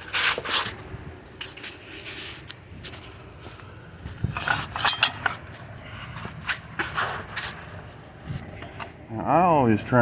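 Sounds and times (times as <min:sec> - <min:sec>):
metal jack stands clinking: 0:04.3 - 0:05.4.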